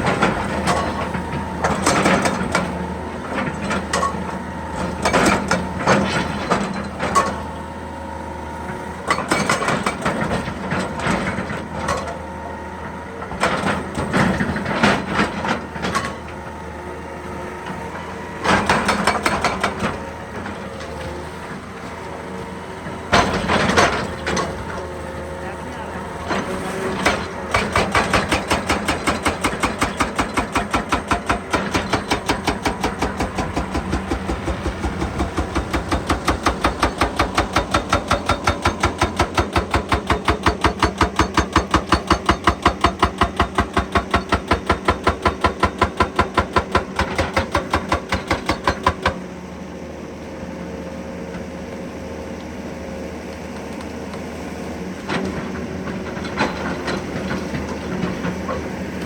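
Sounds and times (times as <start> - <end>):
excavator engine running: 0.0 - 59.0
hydraulic breaker hammering: 18.4 - 21.0, 26.2 - 49.2.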